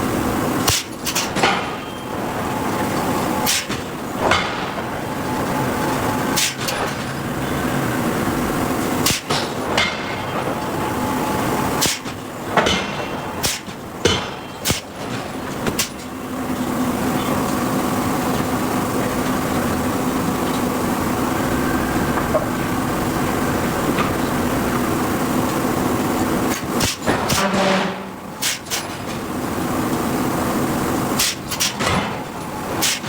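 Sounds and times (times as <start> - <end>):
machinery hum: 0.0 - 33.0
forging hammer striking steel: 3.4 - 4.9, 6.4 - 7.1, 9.0 - 11.1, 11.8 - 16.1, 26.5 - 29.0.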